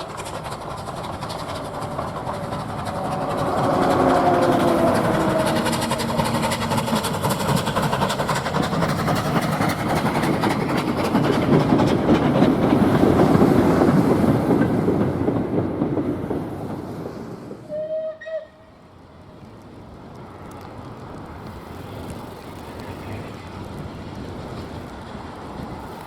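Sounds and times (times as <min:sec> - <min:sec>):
wheels clattering on rail joints: 0:00.0 - 0:17.6, 0:19.1 - 0:26.0
steam locomotive exhaust beats: 0:00.0 - 0:26.0
train whistle blast: 0:17.7 - 0:18.7.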